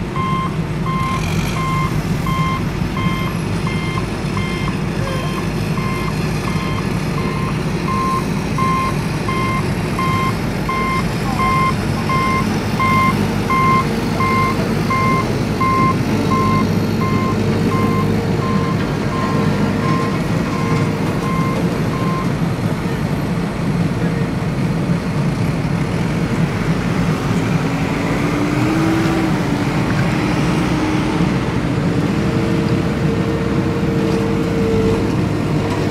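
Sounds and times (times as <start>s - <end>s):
vehicle reversing alarm beeps: 0.2s - 22.3s.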